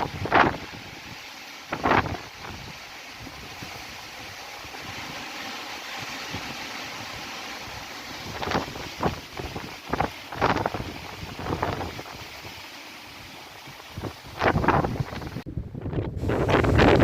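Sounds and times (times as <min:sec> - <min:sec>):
wind gusts buffeting microphone: 0:00.0 - 0:05.2, 0:08.1 - 0:12.6, 0:13.5 - 0:17.0
gale-force wind blowing: 0:00.0 - 0:17.0.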